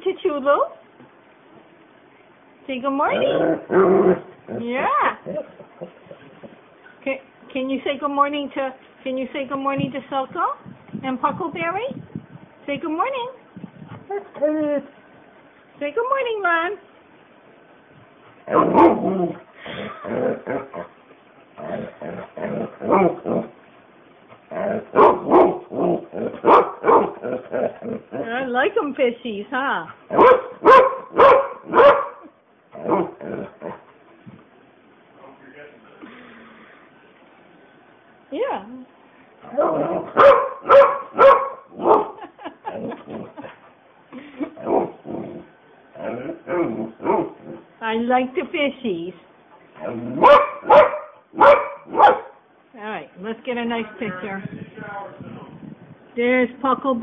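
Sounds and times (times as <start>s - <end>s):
dog woofing: 18.4s - 21.0s, 21.6s - 23.6s, 24.4s - 28.3s, 30.1s - 34.0s, 39.4s - 43.8s, 44.6s - 47.7s, 49.8s - 52.4s.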